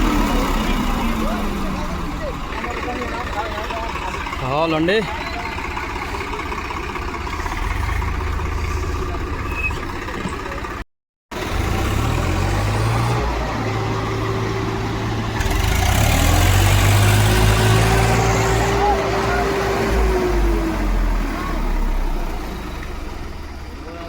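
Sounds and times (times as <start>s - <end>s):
tractor diesel engines rumbling: 0.0s - 24.0s.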